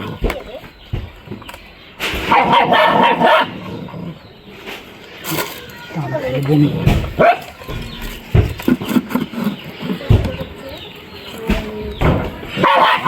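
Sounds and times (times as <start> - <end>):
small animal noises: 0.0 - 13.0
knocks: 6.8 - 10.8.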